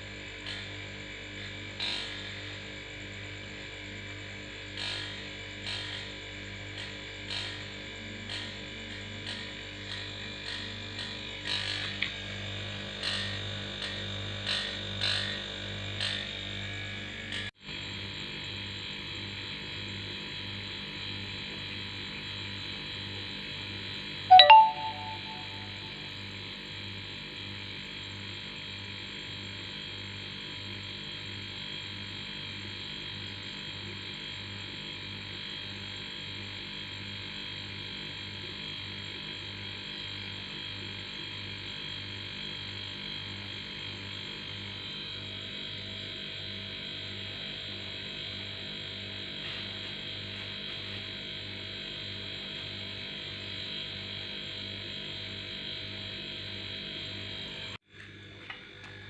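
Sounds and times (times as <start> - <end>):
sharp metallic ding: 24.3 - 25.9.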